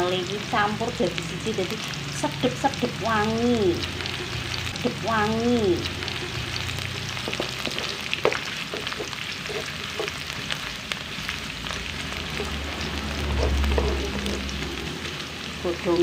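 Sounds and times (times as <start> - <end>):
aromatics sizzling in hot oil: 0.0 - 16.0
wooden spatula scraping a wok: 7.2 - 10.4, 12.4 - 14.5.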